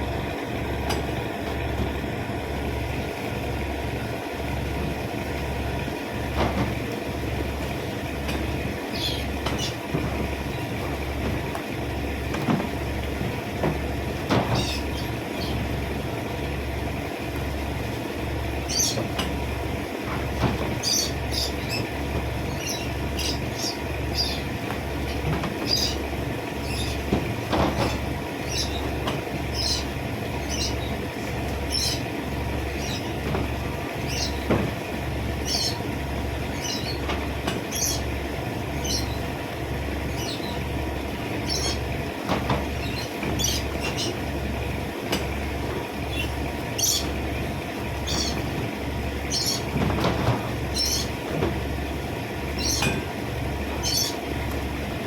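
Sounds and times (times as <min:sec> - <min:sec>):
knocks and clatter: 0:09.4 - 0:14.8, 0:20.0 - 0:22.5, 0:24.6 - 0:26.0, 0:26.8 - 0:28.1, 0:32.9 - 0:35.1, 0:42.2 - 0:44.1, 0:48.0 - 0:50.6.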